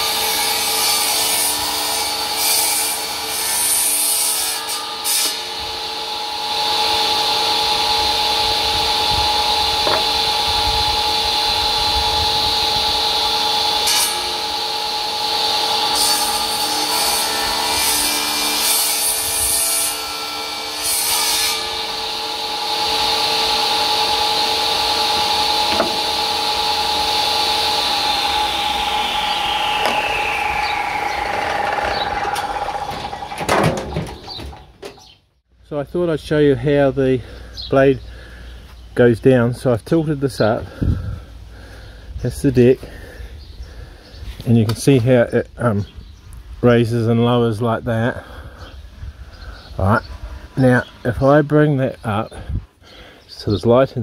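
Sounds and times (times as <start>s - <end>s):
saw rasping through wood: 0.0s - 34.4s
table saw humming: 0.0s - 35.2s.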